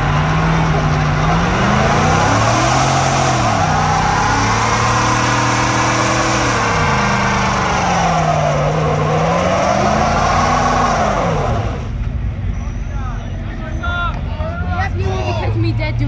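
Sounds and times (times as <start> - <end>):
pickup truck engine revving: 0.0 - 12.0.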